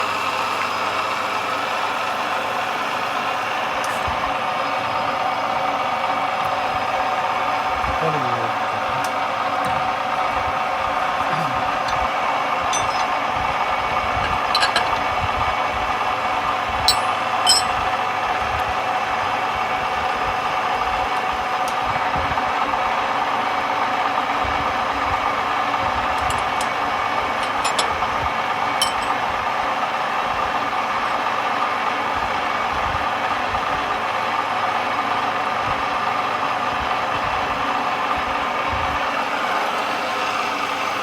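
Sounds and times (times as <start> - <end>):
workshop machine whining: 2.9 - 33.6.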